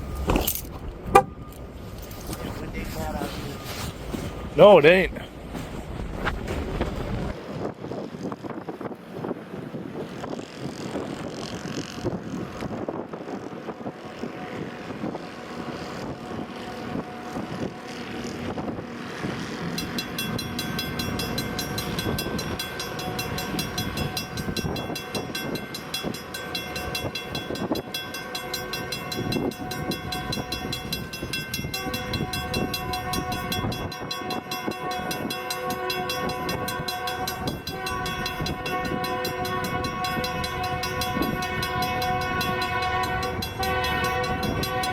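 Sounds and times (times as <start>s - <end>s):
rumbling wind noise: 5.3s - 44.9s
train air horn: 14.2s - 18.4s, 29.1s - 44.9s.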